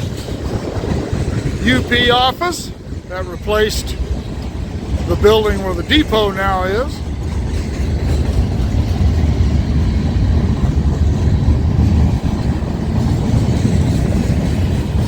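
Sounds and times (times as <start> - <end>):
freight train rumbling past: 0.0 - 15.0
wind buffeting microphone: 0.0 - 15.0.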